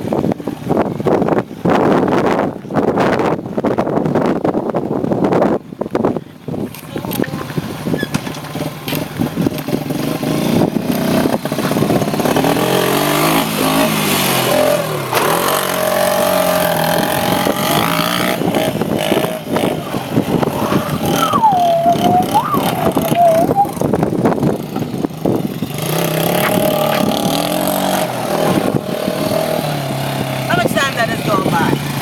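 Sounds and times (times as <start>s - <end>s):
off-road bike engine revving: 6.7s - 32.0s.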